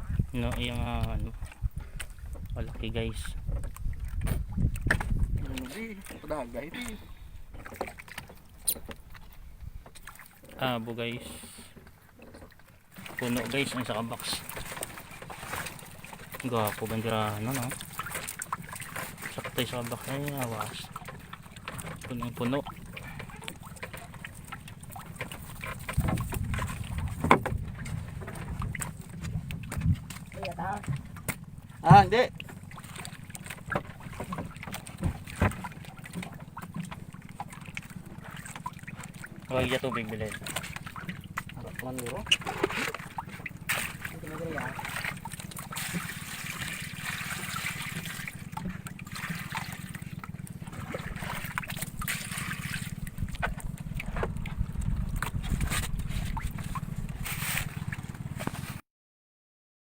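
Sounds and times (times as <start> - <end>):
knocks and clatter on wooden boat: 0.0 - 58.8
water splashing and trickling: 0.0 - 58.8
low rumble: 53.0 - 57.3.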